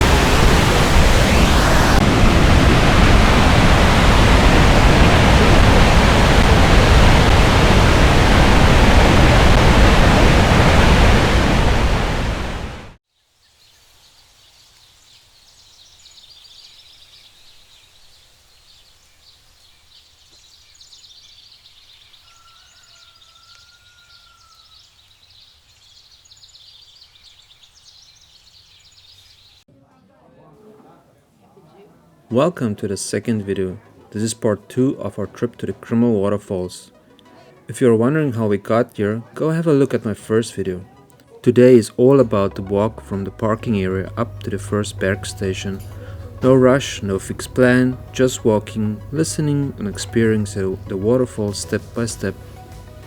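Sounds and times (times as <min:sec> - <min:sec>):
birds chirping: 0:00.0 - 0:12.9, 0:13.5 - 0:29.6, 0:32.6 - 0:53.0
waterfall roaring: 0:00.0 - 0:13.0.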